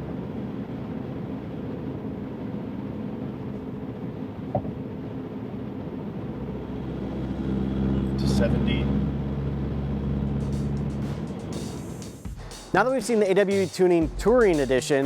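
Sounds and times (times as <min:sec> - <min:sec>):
car exhaust low rumble: 0:00.0 - 0:12.6.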